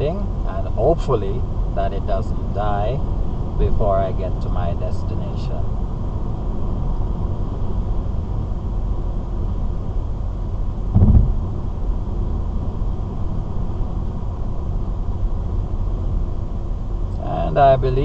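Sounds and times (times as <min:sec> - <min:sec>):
car road and engine rumble: 0:00.0 - 0:18.0
brief low thump: 0:10.9 - 0:11.6.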